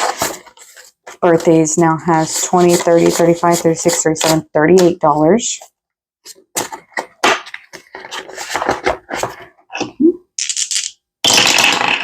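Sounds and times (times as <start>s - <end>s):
paper money rustling: 0.0s - 4.9s.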